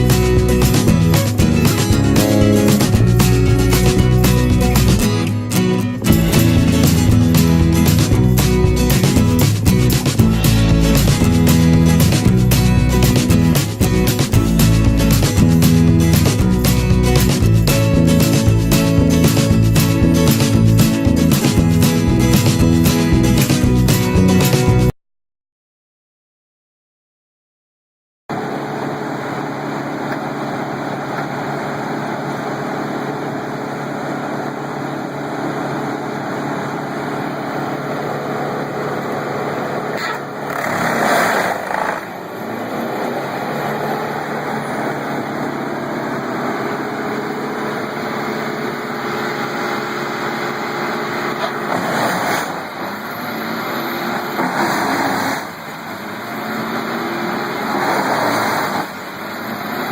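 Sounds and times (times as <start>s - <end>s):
machine engine running: 0.0s - 23.7s, 28.3s - 51.8s.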